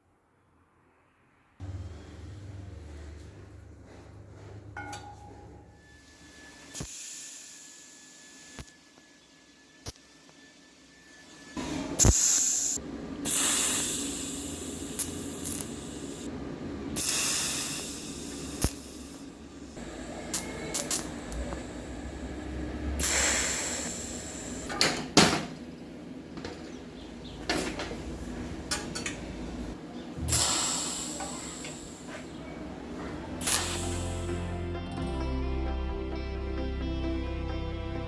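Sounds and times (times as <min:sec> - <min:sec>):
hissing spray bursts: 0:12.0 - 0:16.3, 0:17.0 - 0:24.7, 0:30.2 - 0:32.3, 0:33.4 - 0:34.5.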